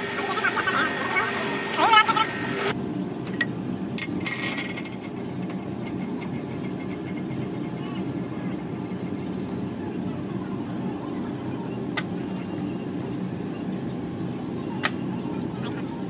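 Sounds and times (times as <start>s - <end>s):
low machine hum: 0.0s - 16.0s
metal tools clinking: 3.4s - 7.4s.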